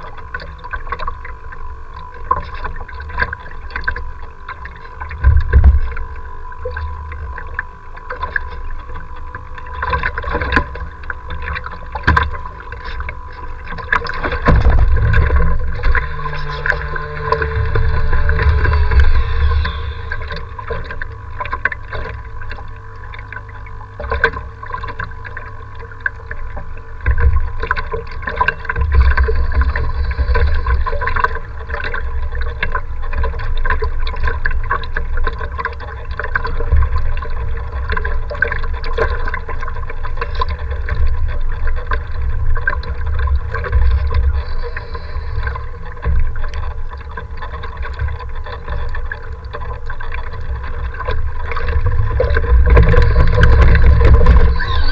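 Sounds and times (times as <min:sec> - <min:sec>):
steady hum: 0:00.0 - 0:33.2, 0:41.8 - 0:47.8, 0:49.2 - 0:54.9
water splashing: 0:09.6 - 0:34.3, 0:37.8 - 0:54.9
wind buffeting microphone: 0:14.2 - 0:21.3.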